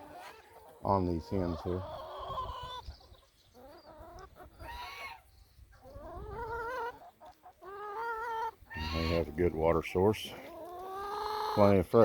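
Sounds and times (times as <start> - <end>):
hens clucking: 0.0 - 12.0
wind rumbling on microphone: 4.3 - 6.7.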